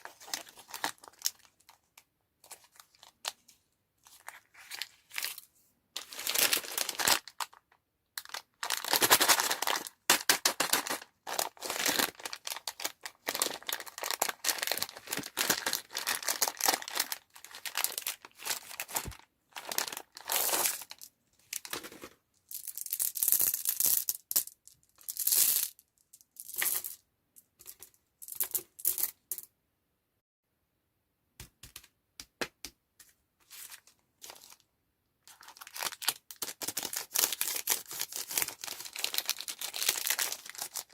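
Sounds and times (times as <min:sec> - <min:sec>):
plastic wrappers crinkling and tearing: 0:00.0 - 0:01.8, 0:06.0 - 0:21.8, 0:35.3 - 0:40.9.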